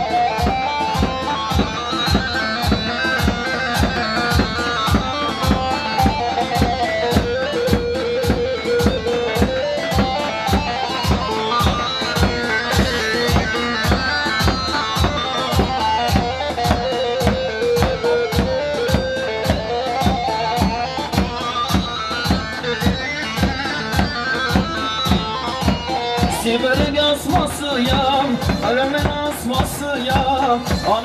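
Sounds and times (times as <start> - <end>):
fast ornamented melody: 0.0 - 28.4
steady drum beat: 0.0 - 31.0.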